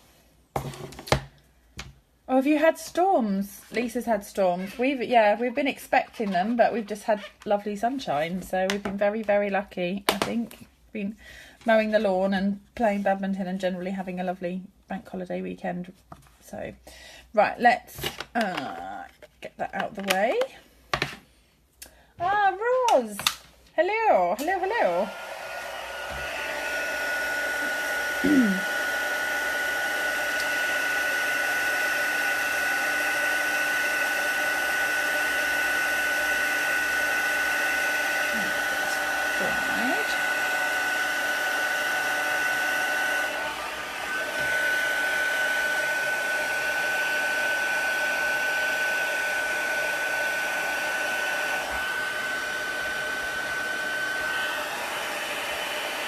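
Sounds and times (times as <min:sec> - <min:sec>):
heat gun blowing with whine: 0:24.2 - 0:56.0.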